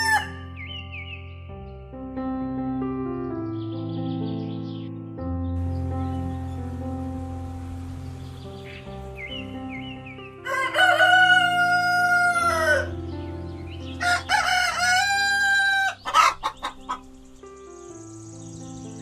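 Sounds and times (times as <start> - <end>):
rooster crowing: 0.0 - 0.4, 10.4 - 13.0, 14.0 - 16.6
soft background music: 0.0 - 19.0
chicken clucking: 14.0 - 17.1.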